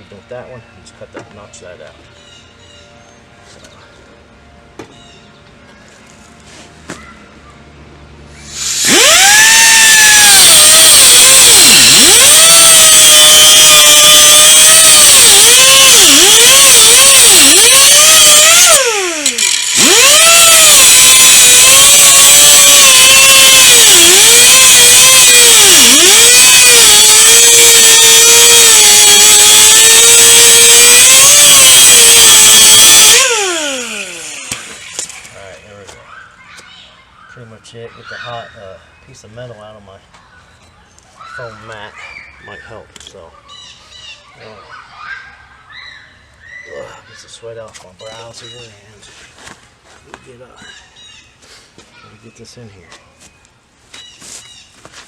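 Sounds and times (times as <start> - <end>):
rotary tool cutting metal: 8.4 - 35.5.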